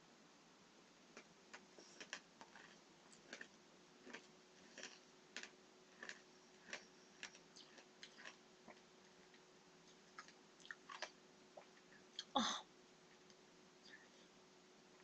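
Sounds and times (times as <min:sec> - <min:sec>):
candy crunching being chewed: 0:01.1 - 0:12.3.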